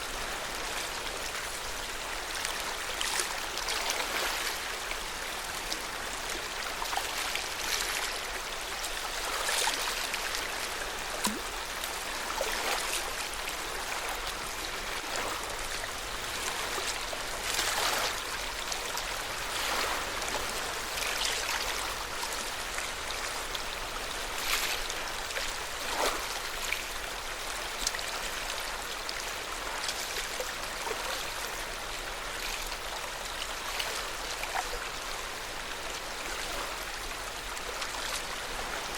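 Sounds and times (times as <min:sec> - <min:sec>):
small water splashes: 0:02.3 - 0:23.6
lake water lapping: 0:12.1 - 0:22.4.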